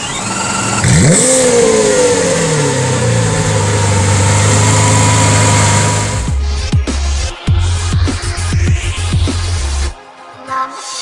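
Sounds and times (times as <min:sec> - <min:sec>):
starter motor whining: 0:00.0 - 0:06.3
car engine starting and idling: 0:00.0 - 0:06.5.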